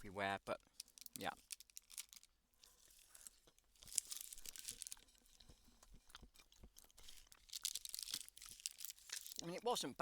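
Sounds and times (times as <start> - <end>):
small clicks and crackles: 0.5 - 9.6
person chewing: 2.6 - 9.4.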